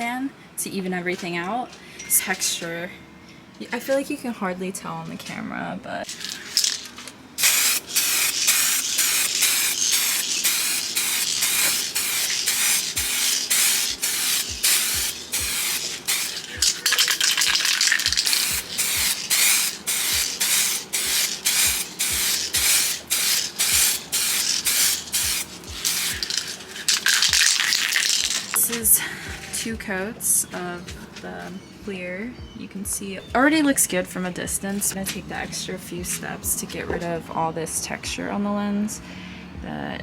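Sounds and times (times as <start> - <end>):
aerosol can spraying: 6.1 - 29.0.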